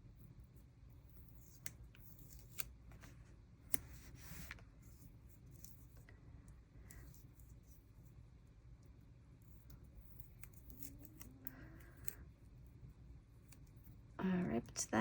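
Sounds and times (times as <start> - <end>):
scissors snipping paper: 1.2 - 2.8, 9.6 - 12.2.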